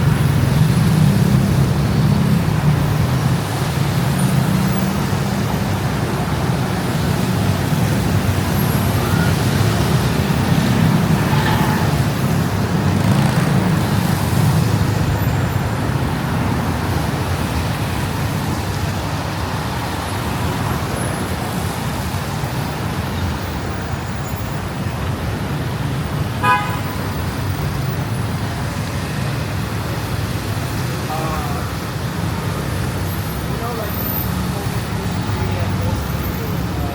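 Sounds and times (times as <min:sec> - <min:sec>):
road traffic rumble: 0:00.0 - 0:36.9
car horn toot: 0:26.4 - 0:27.0.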